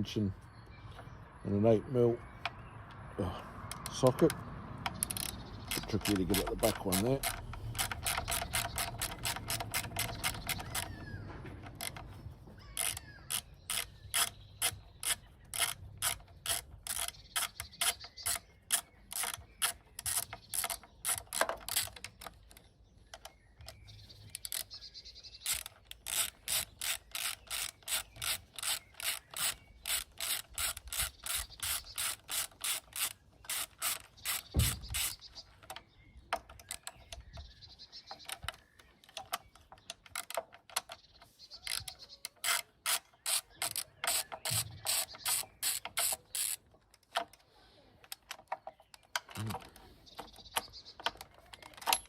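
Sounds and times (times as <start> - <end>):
ratchet clicking: 3.6 - 22.6, 25.4 - 35.8, 41.7 - 47.3.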